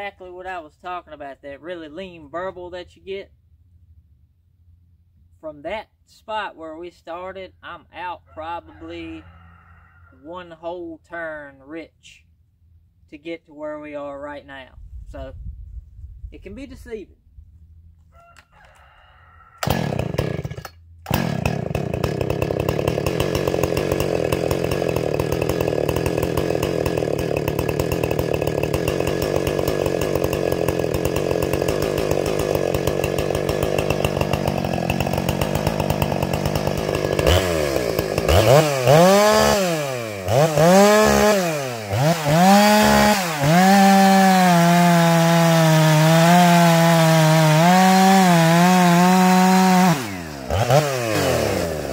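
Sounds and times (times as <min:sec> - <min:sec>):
chainsaw engine revving: 0:19.6 - 0:51.9.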